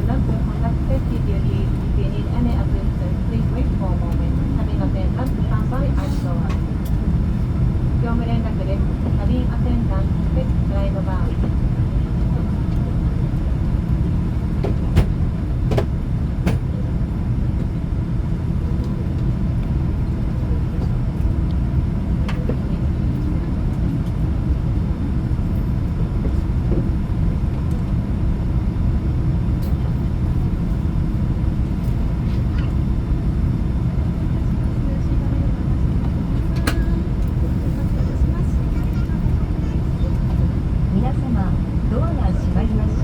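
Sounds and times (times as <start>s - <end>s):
aircraft engine rumble and hum: 0.0s - 43.0s
light clicks in cabin: 5.2s - 7.1s, 14.6s - 16.7s, 22.3s - 22.7s, 36.0s - 38.0s.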